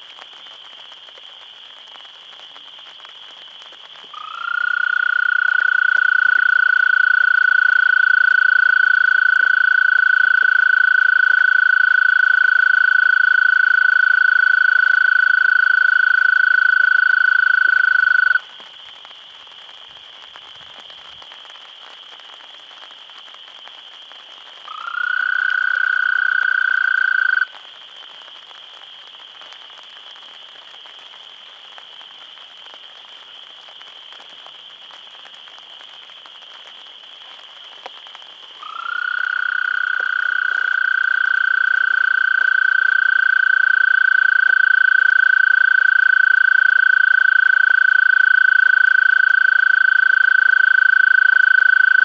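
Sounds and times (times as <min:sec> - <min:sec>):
toad trilling: 0:04.2 - 0:18.4, 0:24.7 - 0:27.5, 0:38.6 - 0:52.0.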